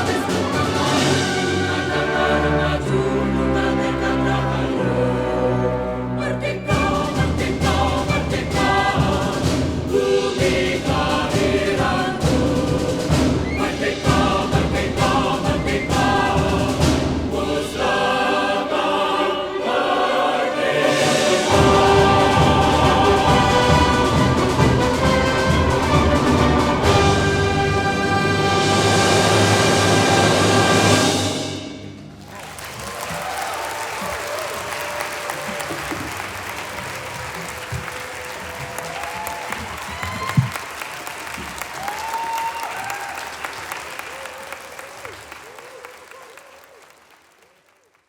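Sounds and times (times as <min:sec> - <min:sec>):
deep timpani: 0:00.0 - 0:18.9, 0:20.6 - 0:32.3
orchestra and choir performing: 0:00.0 - 0:32.7.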